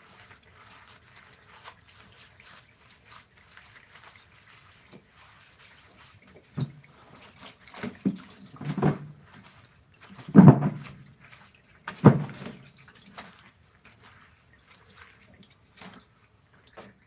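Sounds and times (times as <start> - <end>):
dull knocks: 10.3 - 11.0, 12.0 - 12.6.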